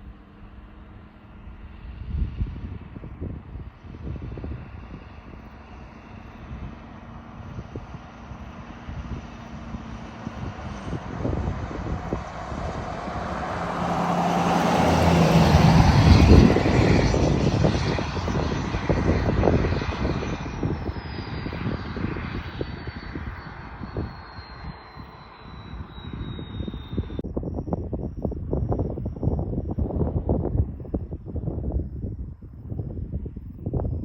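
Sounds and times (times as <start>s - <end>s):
diesel truck driving past: 5.5s - 20.9s
turbo whistle sliding down: 20.0s - 27.2s.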